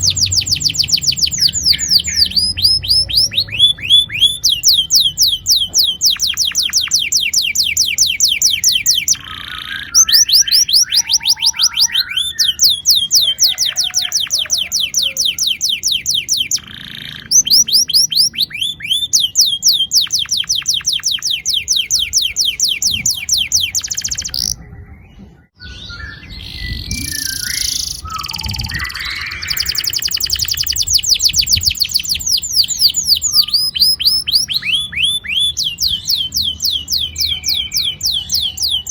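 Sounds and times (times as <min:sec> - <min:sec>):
canary singing rolling trills: 0:00.0 - 0:38.9.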